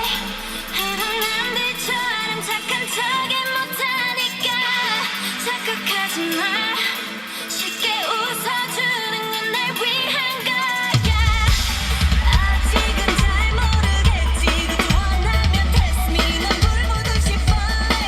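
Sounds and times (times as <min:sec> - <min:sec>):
drums and deep bass: 0:00.0 - 0:03.0, 0:11.0 - 0:18.0
pop song with singing: 0:00.0 - 0:18.0.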